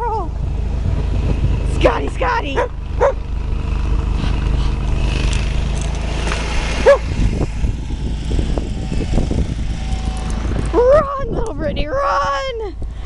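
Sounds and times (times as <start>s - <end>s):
steady low rumble: 0.0s - 13.0s
dog barking: 2.6s - 3.2s, 6.8s - 7.1s.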